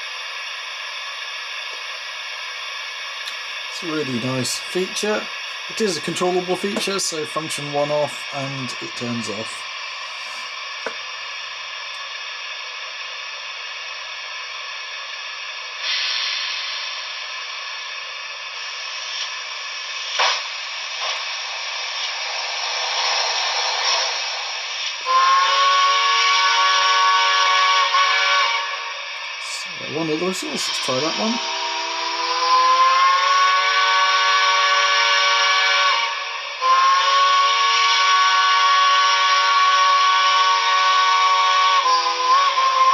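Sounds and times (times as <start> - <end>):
model locomotive steam hiss: 0.0 - 42.9
steam locomotive chime whistle: 25.0 - 42.9.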